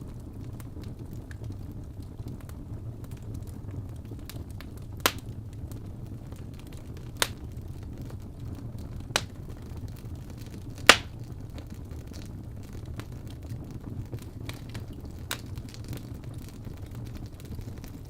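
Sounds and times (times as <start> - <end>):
wood fire burning: 0.0 - 18.0
sharp pops of burning logs: 4.3 - 5.4, 6.6 - 7.6, 9.0 - 12.3, 14.1 - 18.0.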